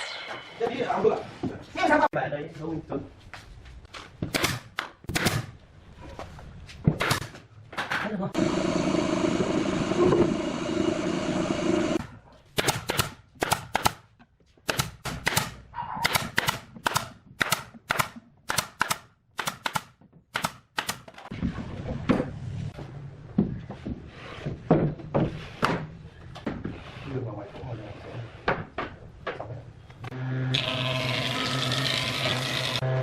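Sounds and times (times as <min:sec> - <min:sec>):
small power tool motor: 0:30.1 - 0:33.0.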